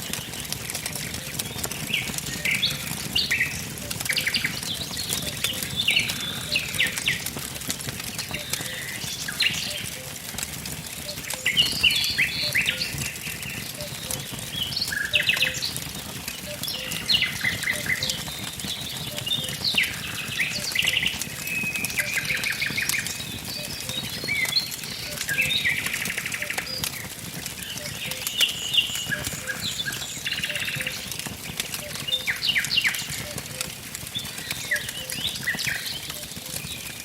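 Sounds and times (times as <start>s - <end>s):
songbirds singing: 0.0s - 37.0s
wood fire crackling: 0.0s - 37.0s.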